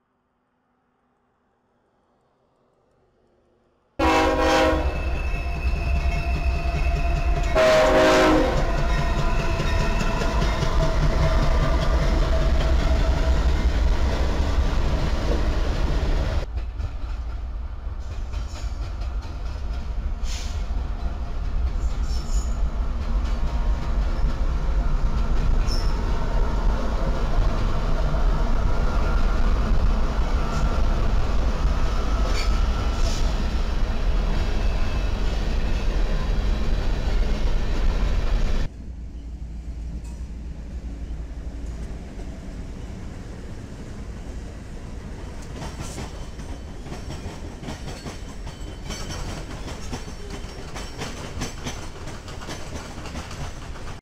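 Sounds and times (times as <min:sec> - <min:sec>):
train horn: 0:04.0 - 0:11.8
wheels clicking over rail joints: 0:45.4 - 0:54.0.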